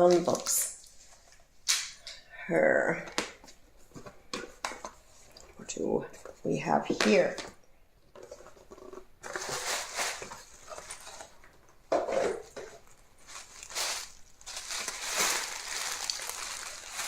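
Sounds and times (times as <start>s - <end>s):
packaging rustling and crinkling: 8.2s - 17.0s.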